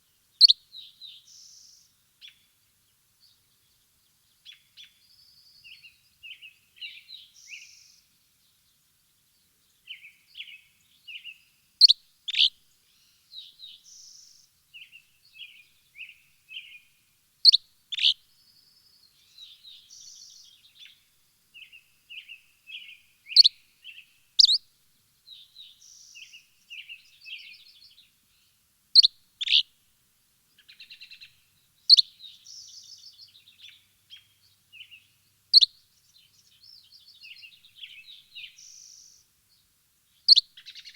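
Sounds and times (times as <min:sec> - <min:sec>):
birds chirping and trilling: 0:24.4 - 0:24.6.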